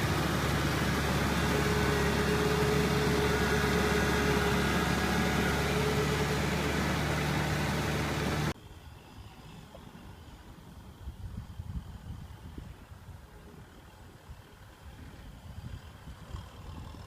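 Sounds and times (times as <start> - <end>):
tractor diesel engine running: 0.0 - 8.6.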